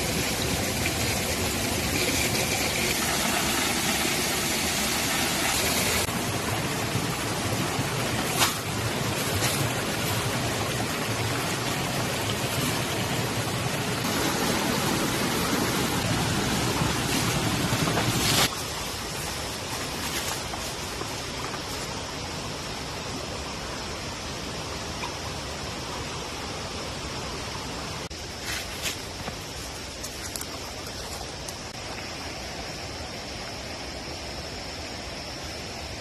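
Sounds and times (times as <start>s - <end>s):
water rushing: 0.0s - 23.7s.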